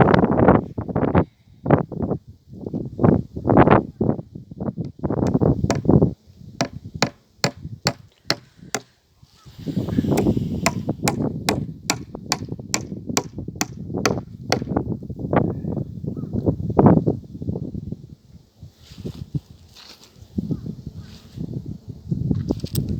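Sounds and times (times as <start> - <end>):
wind buffeting microphone: 0.0 - 18.2
rapid sharp knocks: 5.3 - 5.9, 6.6 - 8.9, 10.2 - 14.7.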